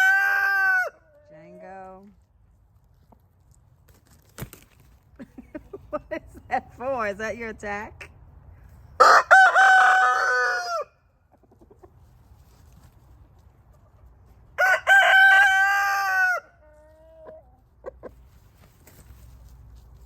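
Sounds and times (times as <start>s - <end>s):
rooster crowing: 0.0s - 1.0s, 9.0s - 11.0s, 14.6s - 16.7s.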